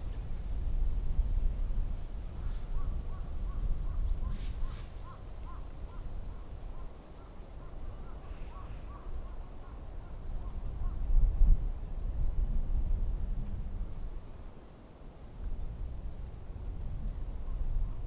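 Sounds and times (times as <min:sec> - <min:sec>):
low wind rumble: 0:00.0 - 0:18.0
distant birds calling: 0:02.6 - 0:11.0.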